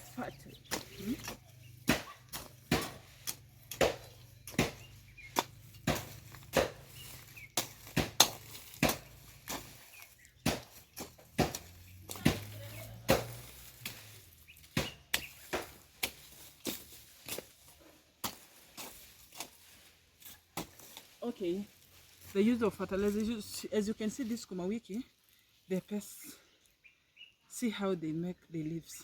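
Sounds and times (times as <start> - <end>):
hand tool chopping into soil: 0.0 - 22.3.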